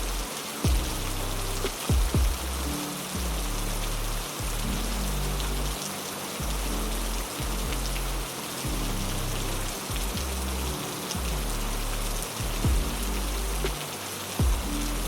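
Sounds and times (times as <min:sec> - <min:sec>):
heavy rain hissing: 0:00.0 - 0:15.0
low held musical notes: 0:00.0 - 0:15.0.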